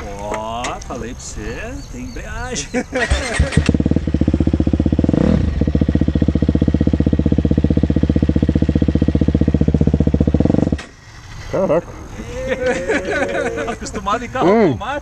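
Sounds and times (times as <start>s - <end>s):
motorcycle engine idling: 2.9s - 11.0s.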